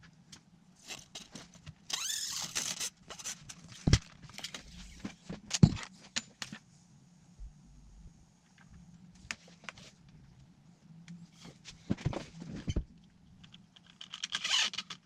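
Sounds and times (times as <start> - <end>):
faint high whine: 6.2 - 13.5.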